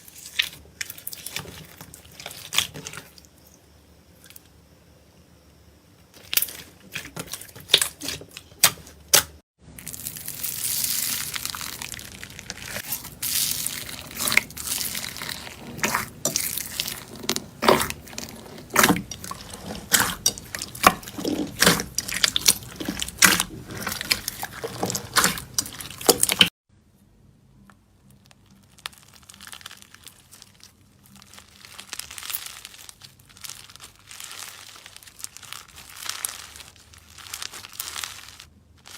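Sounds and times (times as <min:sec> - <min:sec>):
slime squeezed and stretched by hand: 0:09.9 - 0:26.5, 0:28.6 - 0:38.9.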